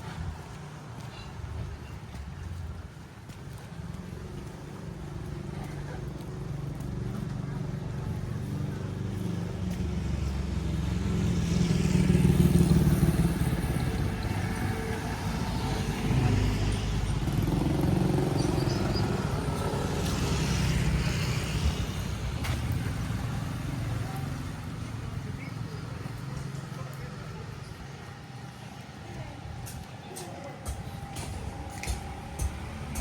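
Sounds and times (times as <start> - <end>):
vehicles driving past: 0.0 - 33.0.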